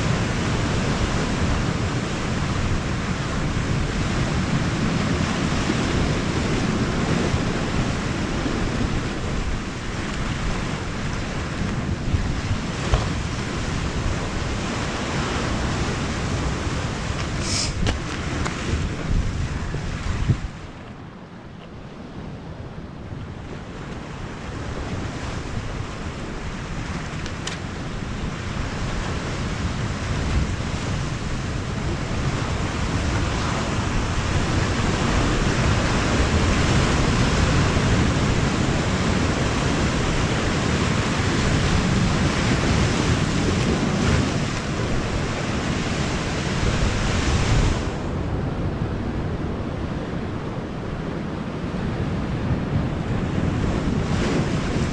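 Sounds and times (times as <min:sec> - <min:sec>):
sea surf washing in: 0:00.0 - 0:54.9
wind on microphone: 0:00.0 - 0:54.9.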